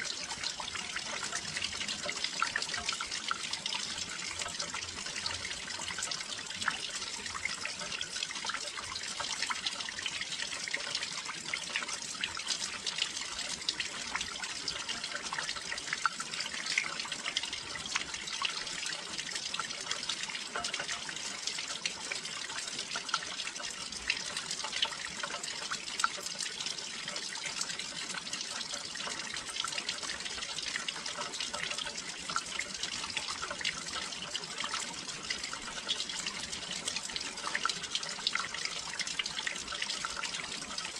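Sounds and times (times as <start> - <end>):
steady rain patter: 0.0 - 40.9.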